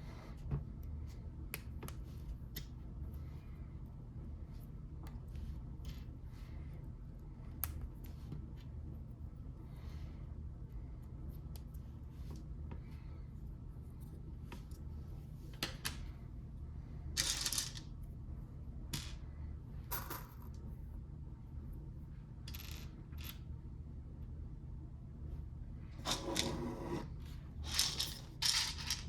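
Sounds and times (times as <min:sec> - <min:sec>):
plastic pieces rattling scrapes: 0:27.6 - 0:29.0.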